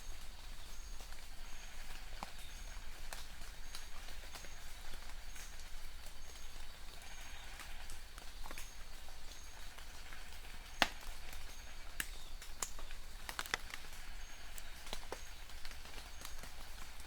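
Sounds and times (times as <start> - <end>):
rain falling: 0.0 - 17.0
raindrops tapping: 9.7 - 17.0.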